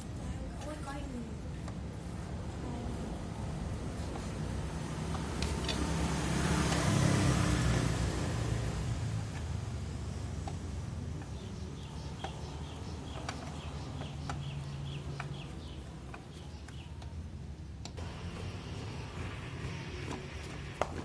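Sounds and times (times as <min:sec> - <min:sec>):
low engine hum: 0:00.0 - 0:21.0
small birds chirping: 0:10.1 - 0:20.6.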